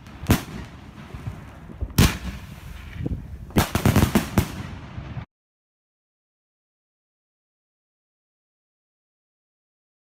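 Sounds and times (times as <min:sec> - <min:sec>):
fireworks bangs: 0:00.0 - 0:05.3
fireworks rumble: 0:00.0 - 0:05.3.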